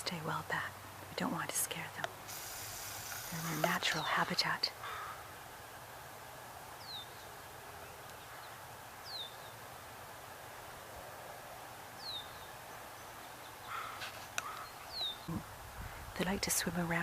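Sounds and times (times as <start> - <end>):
outdoor background hiss: 0.0 - 17.0
bird chirping: 6.8 - 9.6, 12.0 - 15.3.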